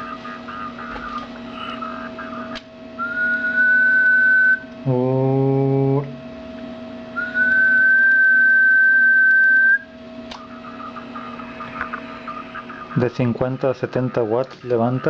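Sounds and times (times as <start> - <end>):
person whistling a held note: 7.2 - 9.8.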